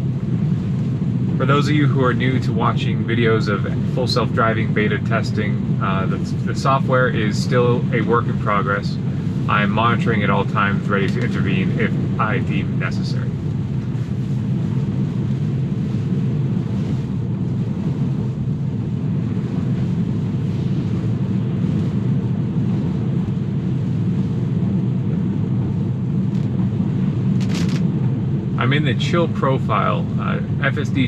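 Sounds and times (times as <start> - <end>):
tyre and road noise on wet road: 27.3 - 29.8.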